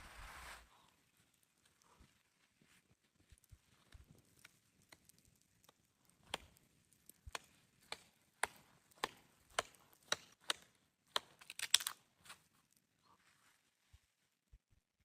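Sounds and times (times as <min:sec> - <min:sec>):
axe chopping wood: 0:06.3 - 0:06.5, 0:07.3 - 0:12.0.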